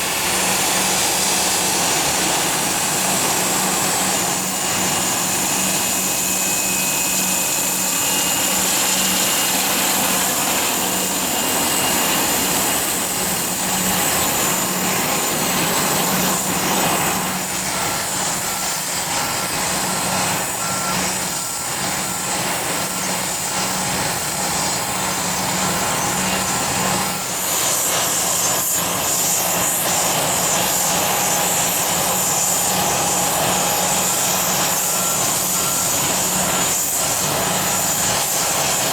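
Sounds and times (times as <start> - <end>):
jet engines whining: 0.0 - 38.9
vehicle reversing beeper: 15.6 - 21.6, 34.6 - 38.0.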